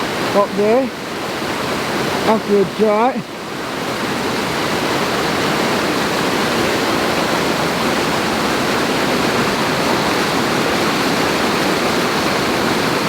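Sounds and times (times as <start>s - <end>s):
stream water rushing loudly: 0.0s - 13.0s.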